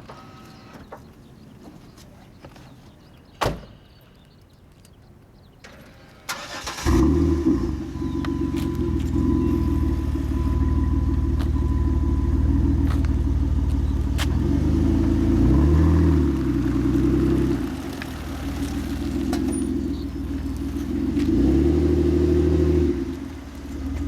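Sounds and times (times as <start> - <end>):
car engine starting and idling: 5.6 - 24.0.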